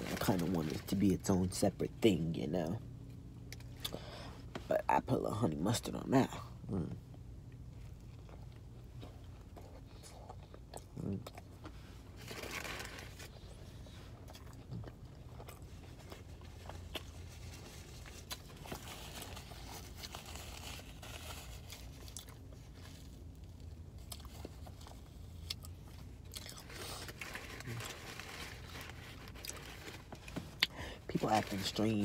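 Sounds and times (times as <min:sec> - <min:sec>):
person chewing sandwich: 0:06.7 - 0:30.8.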